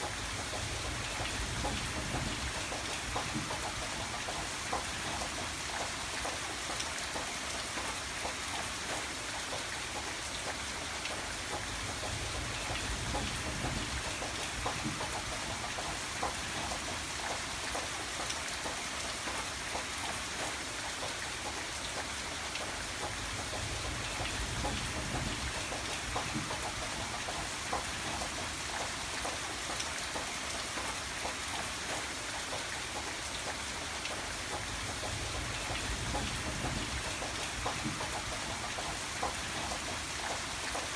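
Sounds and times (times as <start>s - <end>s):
rain hissing: 33.7s - 40.9s.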